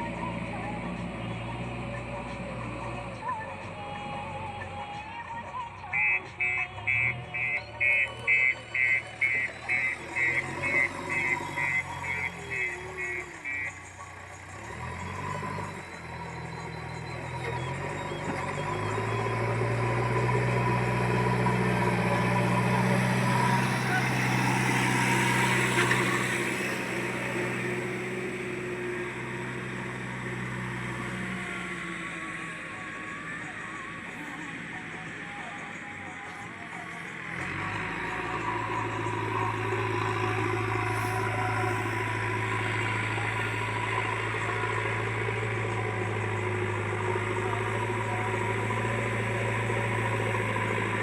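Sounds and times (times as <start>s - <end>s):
diesel engine running: 0.0s - 51.0s
reversing alarm beeping: 5.9s - 51.0s.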